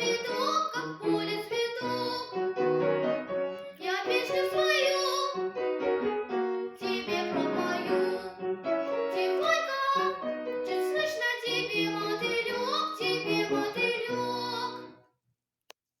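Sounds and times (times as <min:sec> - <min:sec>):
girl singing: 0:00.0 - 0:02.5, 0:03.6 - 0:05.5, 0:06.7 - 0:15.0
piano accompaniment: 0:00.0 - 0:15.0.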